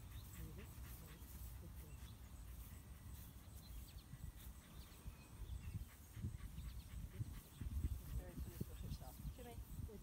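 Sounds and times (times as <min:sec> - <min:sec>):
faint bird chirps: 0:01.1 - 0:08.1.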